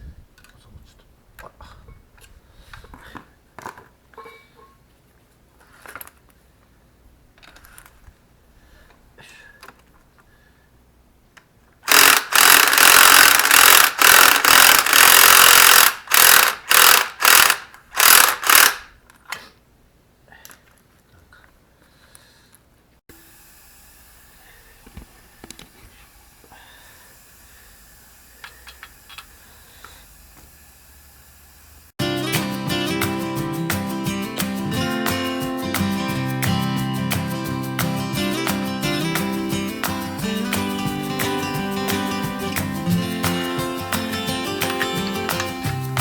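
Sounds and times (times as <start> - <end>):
power tool running in bursts: 11.9 - 18.8, 23.1 - 31.9.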